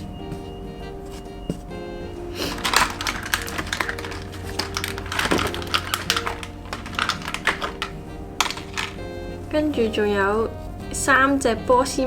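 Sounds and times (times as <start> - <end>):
background music: 0.0 - 12.0
packaging rustling: 2.3 - 9.0
plastic toy pieces clicking: 2.4 - 9.0.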